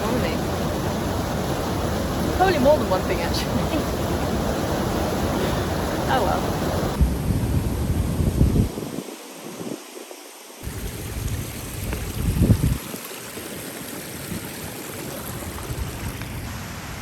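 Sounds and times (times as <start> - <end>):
water rushing down rocky waterfall: 0.0 - 7.0, 10.6 - 17.0
wind buffeting microphone: 0.0 - 17.0.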